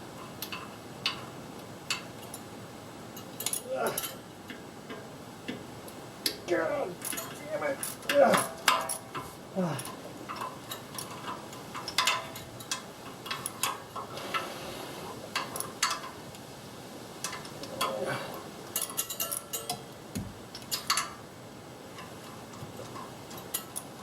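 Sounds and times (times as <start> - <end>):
metal tools clinking: 3.2 - 4.2, 6.4 - 14.5, 17.2 - 20.0, 20.6 - 21.2, 21.9 - 24.0.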